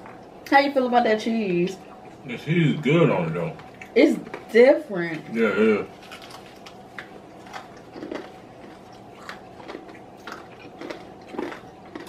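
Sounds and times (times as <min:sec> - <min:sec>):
crunchy fried chicken chewing: 0:05.8 - 0:12.0.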